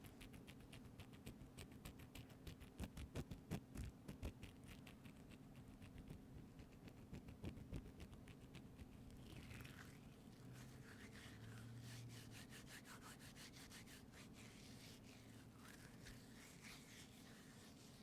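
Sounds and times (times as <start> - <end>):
soft rubbing: 4.4 - 18.0.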